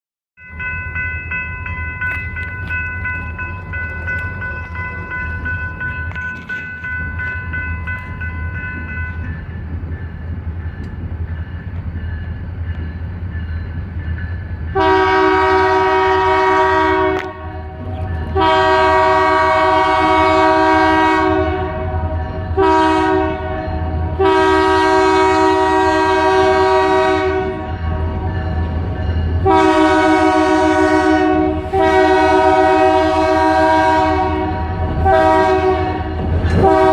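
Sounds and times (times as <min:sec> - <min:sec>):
diesel locomotive rumble: 0:00.6 - 0:36.9
locomotive horn blasts: 0:14.7 - 0:28.2, 0:29.4 - 0:36.9.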